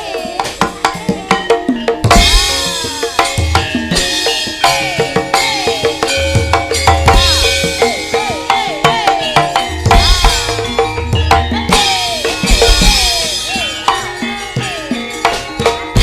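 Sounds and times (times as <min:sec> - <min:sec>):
ringing metallophone notes: 0:00.0 - 0:16.0.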